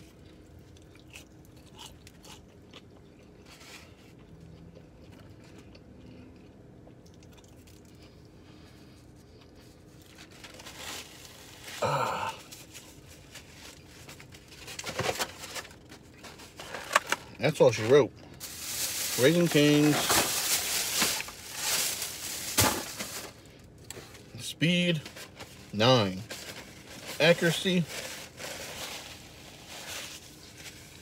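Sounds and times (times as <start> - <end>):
person chewing crispy chicken: 0.0 - 10.6.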